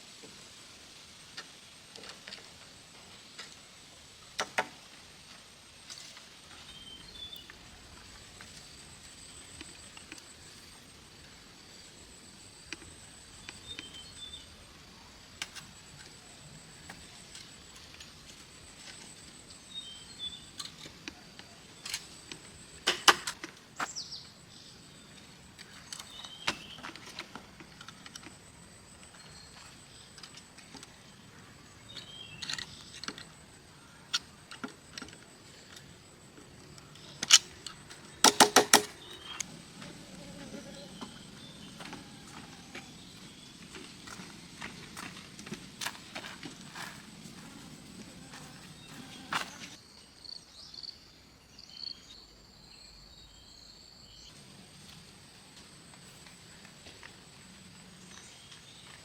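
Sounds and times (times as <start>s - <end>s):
high insect trill: 0.0s - 59.0s
sharp knocks and clicks: 38.2s - 39.0s.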